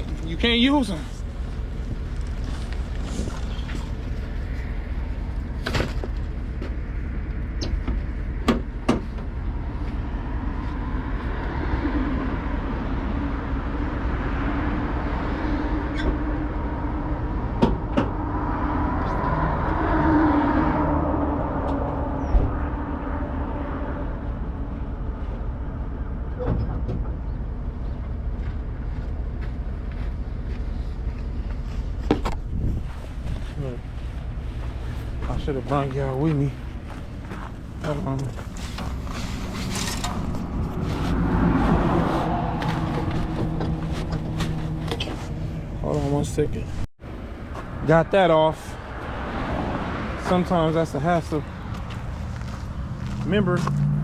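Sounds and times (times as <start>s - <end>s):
vehicle engine rumble: 0.0s - 54.0s
sharp knocks and clicks: 7.6s - 9.3s, 17.6s - 18.2s.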